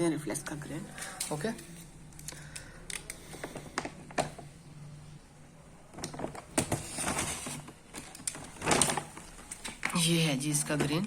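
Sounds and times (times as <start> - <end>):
plastic bag rustling: 6.0 - 11.0.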